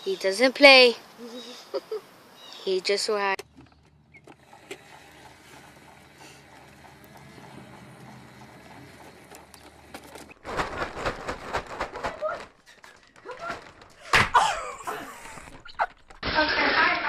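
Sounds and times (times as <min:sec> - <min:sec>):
rapid knocking and clattering: 0:03.4 - 0:16.2.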